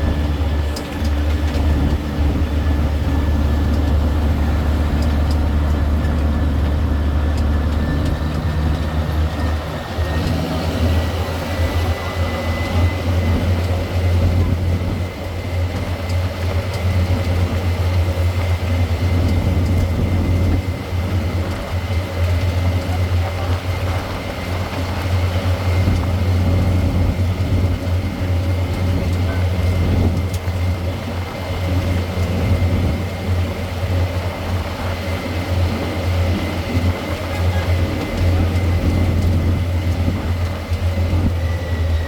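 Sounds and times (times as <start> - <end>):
low engine drone: 0.0 - 42.0
thin steady whine: 0.0 - 42.0.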